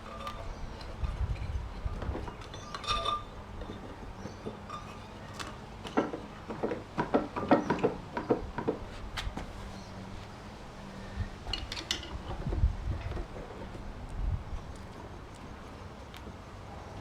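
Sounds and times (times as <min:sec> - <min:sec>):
metal tools clinking and knocking: 0:00.0 - 0:05.2.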